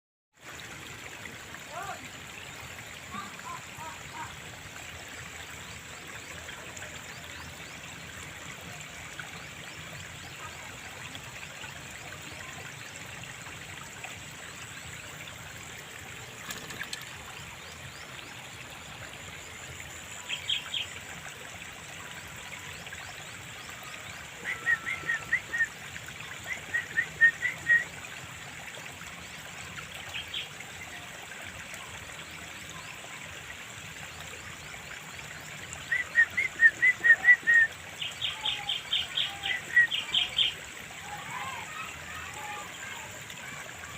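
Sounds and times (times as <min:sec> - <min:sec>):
water trickling: 0:00.4 - 0:43.9
bird calling bubbly notes: 0:15.7 - 0:18.4, 0:23.8 - 0:28.1, 0:35.7 - 0:40.7.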